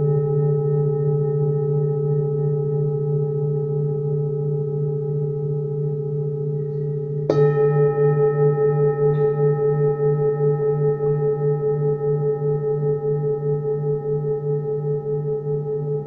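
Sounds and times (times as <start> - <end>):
bowl struck: 0.0 - 16.0
singing bowls ringing: 0.0 - 16.0.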